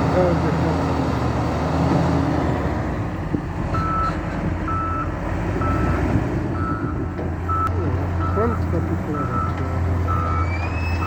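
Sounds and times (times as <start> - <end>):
heavy machine engine running: 0.0 - 11.0
reversing alarm beeping: 3.8 - 11.0.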